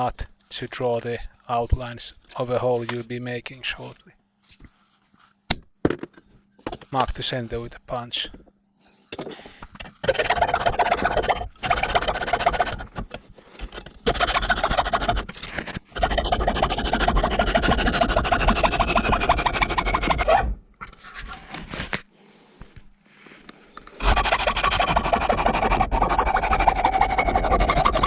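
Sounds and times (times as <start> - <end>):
hand tool rasping metal sheet: 10.0 - 13.0, 14.0 - 20.3, 24.0 - 28.0.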